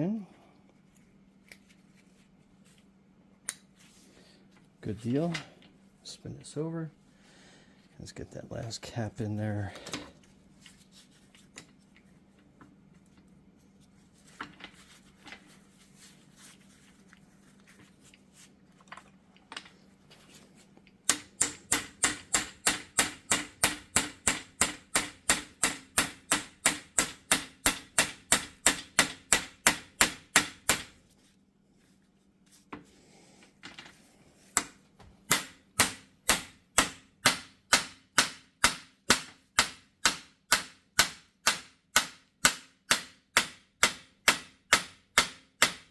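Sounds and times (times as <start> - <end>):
hammer tapping on metal: 21.1 - 30.8.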